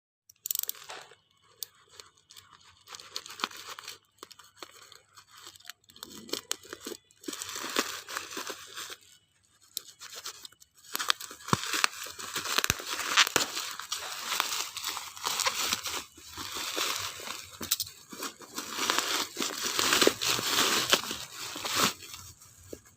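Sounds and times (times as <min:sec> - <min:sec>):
plastic packaging tearing and crinkling: 0:00.5 - 0:22.9.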